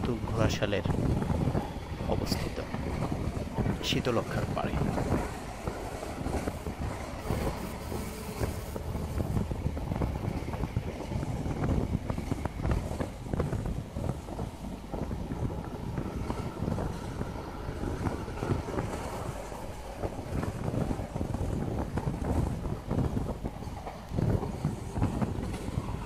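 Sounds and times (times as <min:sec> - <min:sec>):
train wheels rumbling on track: 0:00.0 - 0:26.0
wind buffeting microphone: 0:00.0 - 0:26.0.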